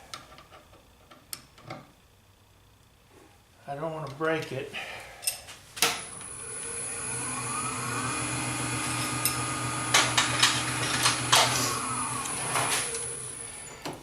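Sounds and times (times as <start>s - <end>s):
lathe motor whine: 6.0s - 14.0s.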